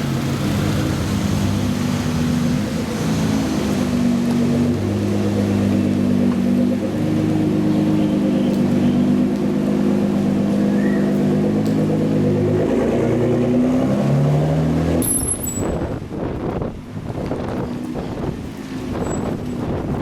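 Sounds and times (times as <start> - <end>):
supercar engines revving: 0.0 - 15.1.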